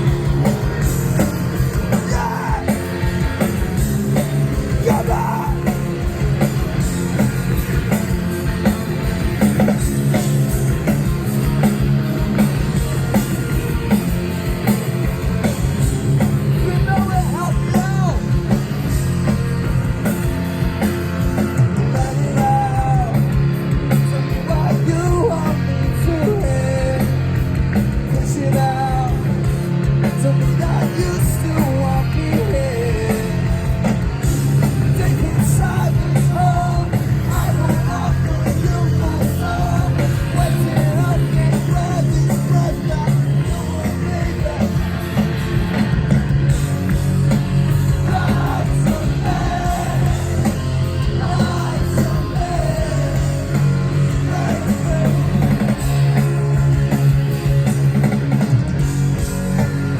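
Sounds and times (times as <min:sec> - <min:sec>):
live rock band playing: 0:00.0 - 0:59.9
person singing: 0:48.0 - 0:55.8.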